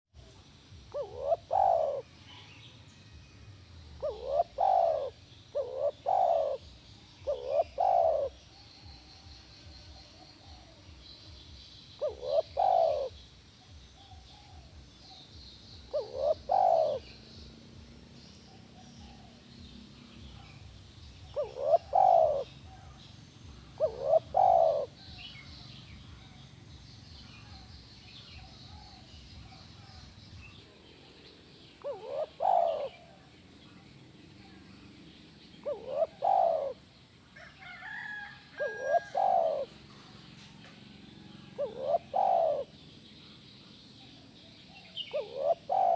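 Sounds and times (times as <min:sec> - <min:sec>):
dove cooing: 0:00.2 - 0:02.5, 0:03.9 - 0:09.0, 0:12.0 - 0:15.1, 0:15.8 - 0:17.5, 0:18.5 - 0:26.4, 0:31.6 - 0:33.4, 0:35.6 - 0:36.9, 0:38.6 - 0:40.1, 0:41.0 - 0:42.8, 0:44.8 - 0:45.9
faint small birds chirping: 0:00.2 - 0:45.9.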